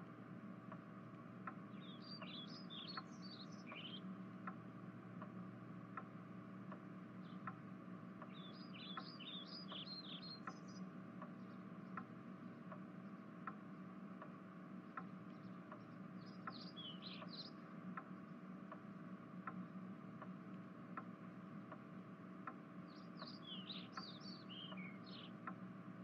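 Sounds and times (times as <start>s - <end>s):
soft regular tick: 0.0s - 25.7s
steady low hum: 0.0s - 26.0s
birds twittering: 1.4s - 4.6s, 7.1s - 7.6s, 8.2s - 14.2s, 14.9s - 18.4s, 22.8s - 25.6s.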